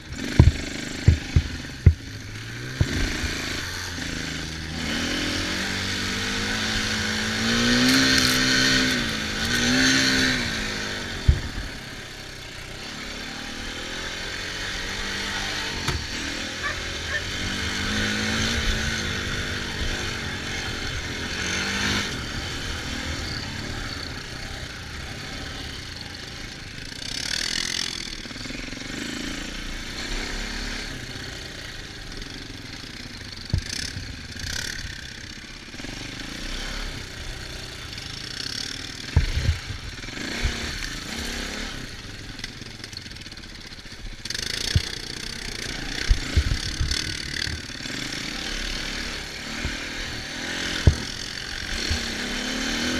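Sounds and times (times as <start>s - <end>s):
dirt bike engine revving: 0.0s - 52.9s
sharp low thumps: 0.2s - 3.2s.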